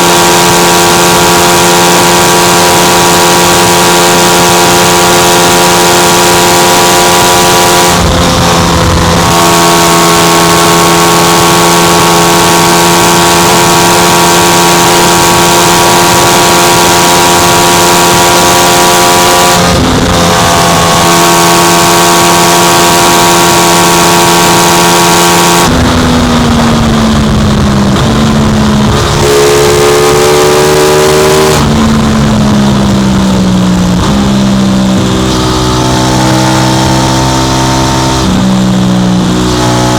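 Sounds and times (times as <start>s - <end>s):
motorcycle engine at high revs: 0.0s - 39.9s
wind rush over microphone: 7.0s - 11.6s, 13.0s - 22.0s, 25.6s - 39.9s.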